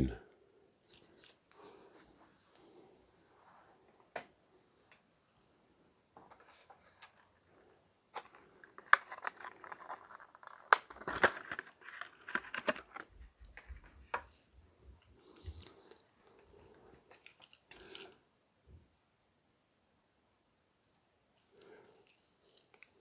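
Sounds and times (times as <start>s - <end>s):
scraping and rustling of handling: 6.2s - 14.3s.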